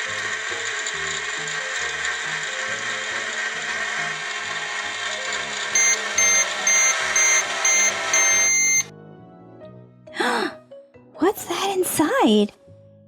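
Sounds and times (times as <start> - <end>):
toy microwave humming: 0.0 - 8.9
microwave beeps: 5.8 - 8.9
soft background music: 8.9 - 13.0.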